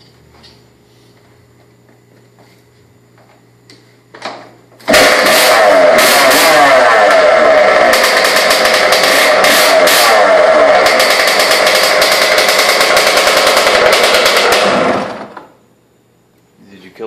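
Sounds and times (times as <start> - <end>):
two-stroke motorcycle engine revving: 4.8 - 15.4.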